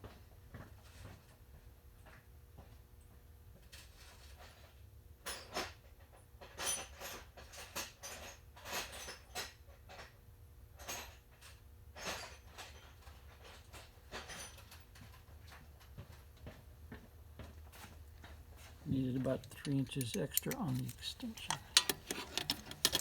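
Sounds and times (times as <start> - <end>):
metal hand tools clinking: 18.9 - 23.0.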